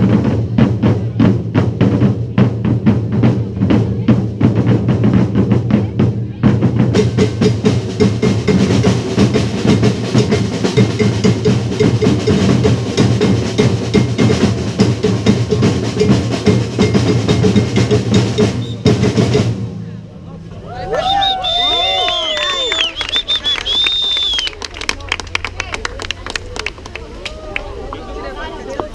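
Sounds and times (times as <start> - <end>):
drums playing fast rhythm: 0.0 - 20.6.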